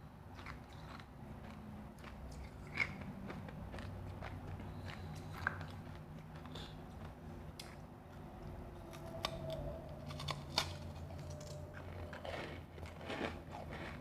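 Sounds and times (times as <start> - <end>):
ice being bitten and crunched: 10.1 - 14.0.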